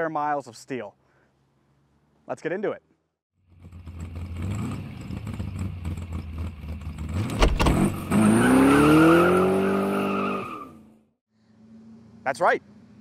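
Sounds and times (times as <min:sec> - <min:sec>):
car engine idling and revving: 0:03.4 - 0:13.0.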